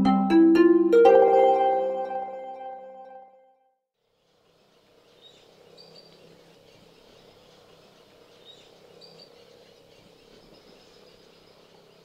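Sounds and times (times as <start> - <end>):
small birds chirping: 4.3 - 12.0.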